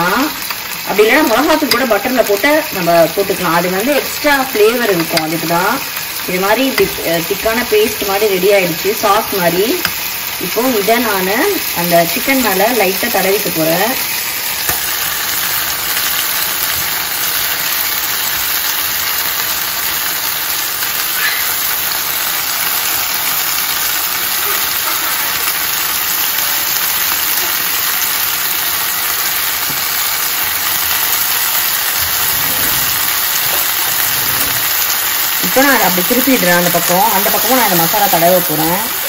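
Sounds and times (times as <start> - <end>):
chicken sizzling in frying pan: 0.0 - 39.0.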